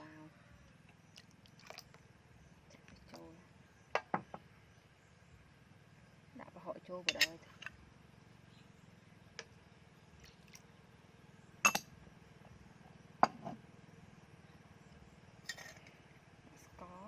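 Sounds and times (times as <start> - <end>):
utensils clinking on cookware: 7.1 - 7.6, 15.5 - 15.9.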